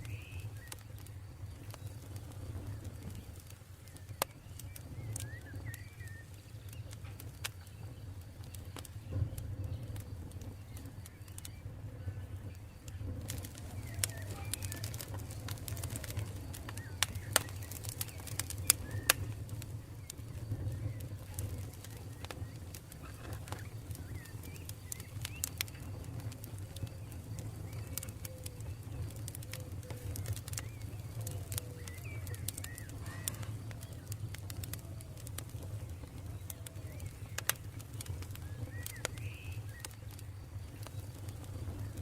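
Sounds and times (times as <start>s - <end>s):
campfire crackling and popping: 0.0s - 42.0s
faint bird calls: 0.0s - 42.0s.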